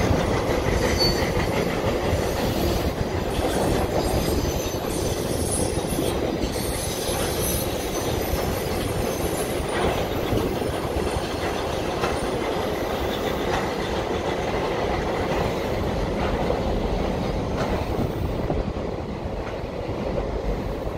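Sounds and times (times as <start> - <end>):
train wheel clicks: 0.0 - 20.9
train wheels rumbling on bridge: 0.0 - 20.9.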